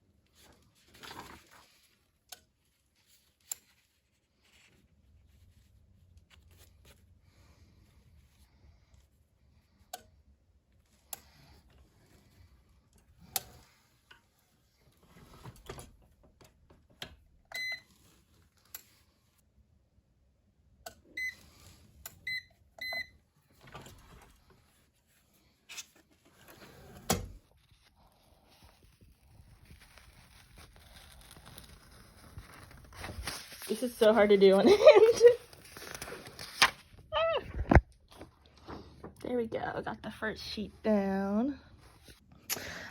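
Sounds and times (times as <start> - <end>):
appliance control panel beeps: 17.5 - 17.9, 21.1 - 21.4, 22.1 - 23.2.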